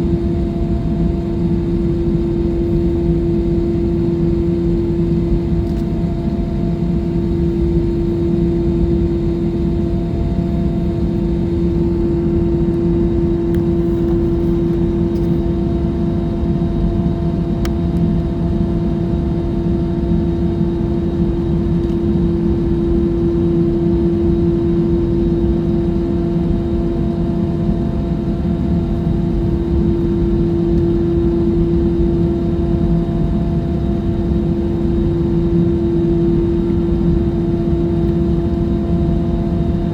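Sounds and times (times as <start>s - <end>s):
jet engines droning: 0.0s - 19.4s
constant hum: 0.0s - 39.9s.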